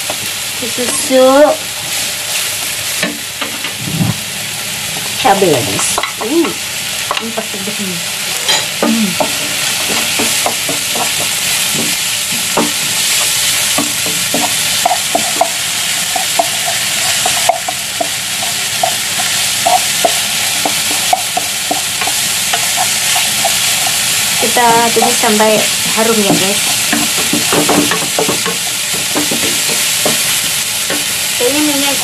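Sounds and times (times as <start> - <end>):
food sizzling in hot oil: 0.0 - 32.0
wooden spatula knocking pan: 8.8 - 31.2.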